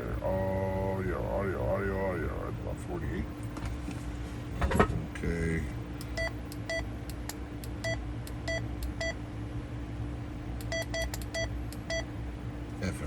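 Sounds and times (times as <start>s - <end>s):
steady low hum: 0.0s - 13.0s
radio key beeps: 10.6s - 12.1s.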